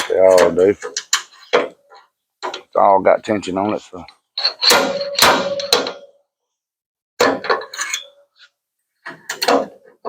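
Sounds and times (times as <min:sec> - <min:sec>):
hammer clanking on sheet metal: 0:04.4 - 0:06.1.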